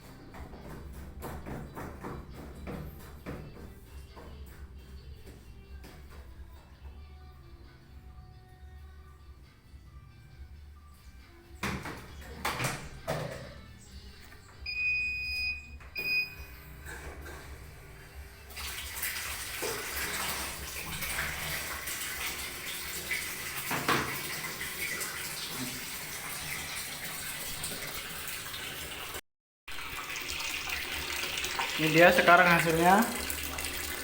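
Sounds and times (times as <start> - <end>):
water running into machine: 18.5 - 34.0.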